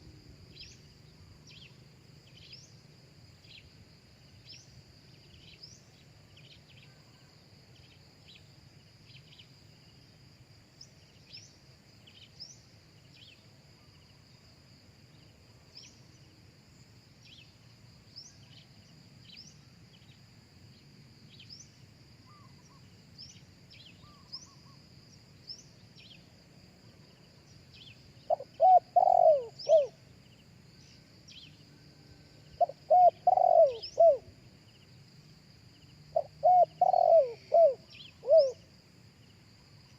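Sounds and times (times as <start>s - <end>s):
small bird chirps: 21.3s - 24.8s, 27.6s - 31.6s, 32.6s - 34.2s, 36.2s - 38.6s
dove cooing: 28.3s - 30.0s, 32.6s - 34.3s, 36.1s - 38.6s.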